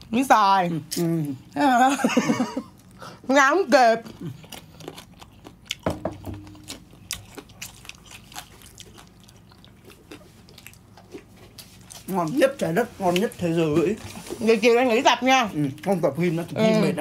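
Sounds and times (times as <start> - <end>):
person chewing with crunches: 2.6 - 14.6.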